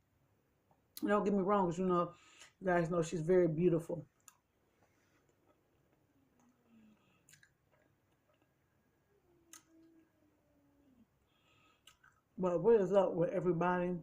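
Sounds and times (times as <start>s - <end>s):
faint low hum: 0.0s - 14.0s
person chewing food: 4.2s - 8.7s, 11.1s - 12.3s.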